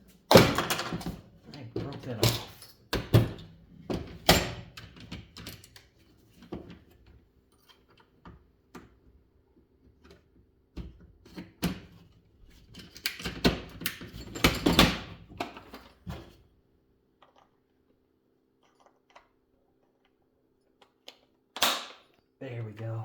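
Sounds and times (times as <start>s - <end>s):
fan parts and tools clattering: 0.3s - 6.6s, 12.7s - 16.3s.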